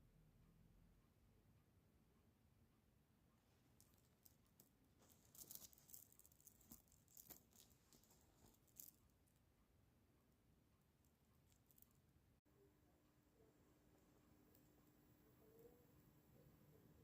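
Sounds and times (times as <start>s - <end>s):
small hard objects clicking: 3.8s - 9.0s.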